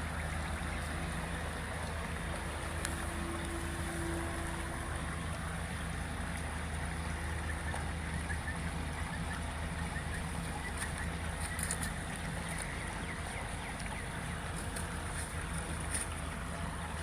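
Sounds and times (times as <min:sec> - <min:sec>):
creek rushing: 0:00.0 - 0:17.0
small birds chirping: 0:06.8 - 0:17.0.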